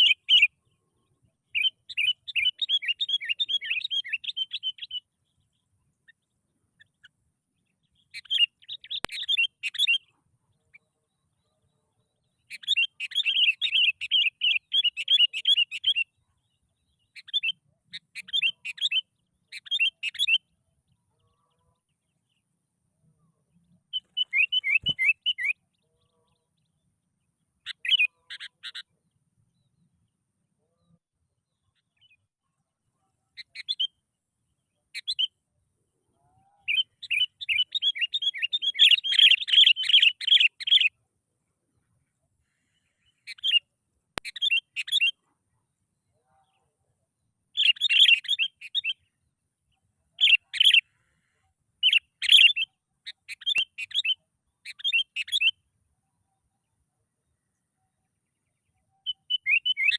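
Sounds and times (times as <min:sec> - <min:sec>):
bulbul chirping song: 0:00.0 - 0:22.6, 0:23.4 - 0:30.1, 0:33.2 - 0:35.5, 0:36.2 - 0:41.0, 0:42.5 - 0:45.3, 0:47.5 - 0:55.7, 0:57.5 - 0:59.9.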